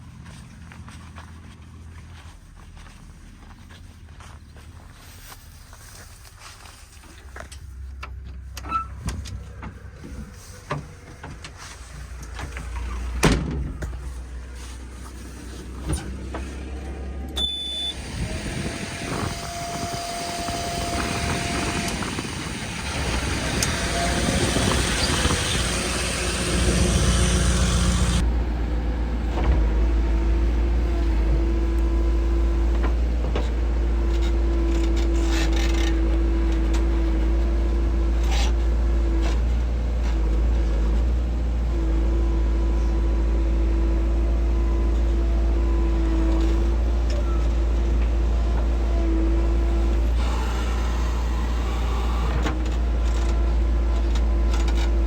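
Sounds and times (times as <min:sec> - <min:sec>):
diesel engines running: 0:00.0 - 0:55.0
steady whine: 0:09.5 - 0:28.3.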